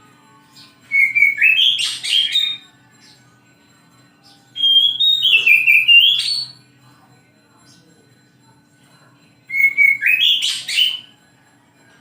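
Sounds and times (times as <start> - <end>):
songbird whistling song: 0.4 - 3.3, 4.2 - 6.6, 9.4 - 11.2.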